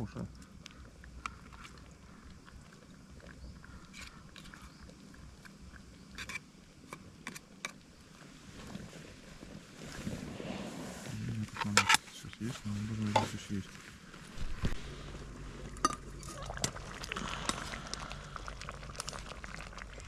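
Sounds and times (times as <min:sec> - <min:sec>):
faint low rumble: 0:07.8 - 0:20.0.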